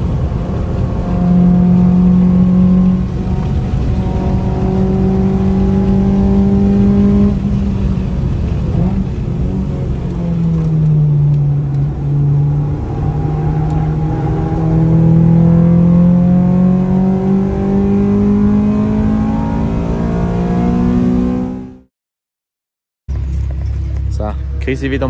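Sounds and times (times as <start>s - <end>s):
car engine accelerating: 0.0s - 21.9s, 23.1s - 25.0s.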